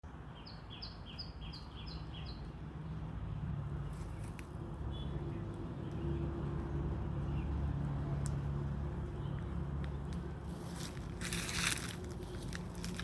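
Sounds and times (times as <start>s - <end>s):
bird chirping: 0.3s - 2.6s.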